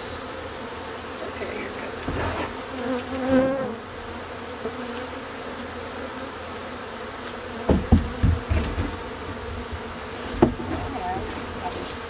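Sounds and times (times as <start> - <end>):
bee swarm buzzing: 0.0 - 12.0
low thumps: 7.7 - 11.8.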